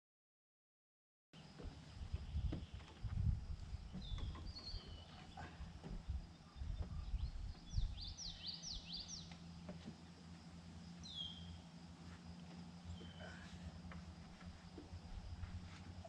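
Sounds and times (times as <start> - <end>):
birds chirping: 1.4 - 16.0
steady low hum: 1.4 - 16.0
dull low thumps: 1.5 - 8.3.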